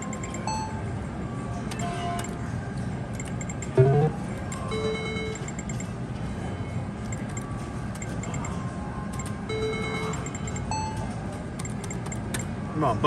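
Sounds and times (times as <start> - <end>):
electronic tones and high beeps: 3.2 - 5.9, 9.2 - 12.3.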